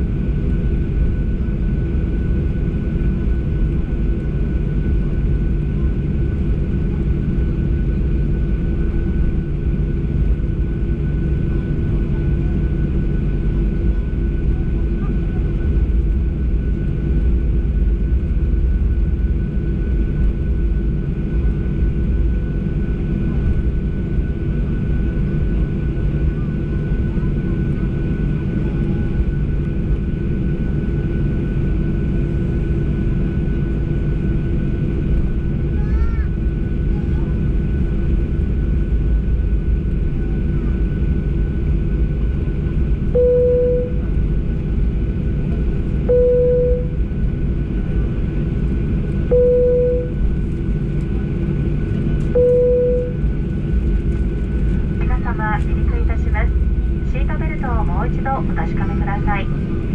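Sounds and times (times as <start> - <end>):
jet engines low rumble: 0.0 - 59.9
fixed-pitch hum: 43.2 - 44.2, 46.1 - 47.0, 49.3 - 50.3, 52.4 - 53.3, 55.0 - 59.9.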